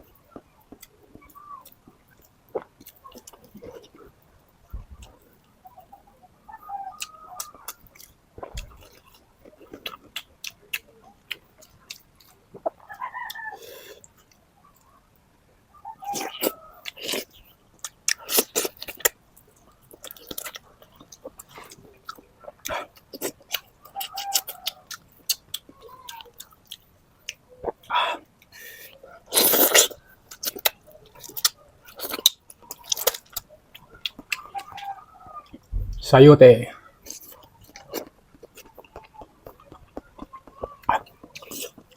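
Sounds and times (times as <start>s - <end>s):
wet chewing with lip smacks: 7.0s - 14.4s, 16.1s - 35.7s, 37.0s - 41.9s.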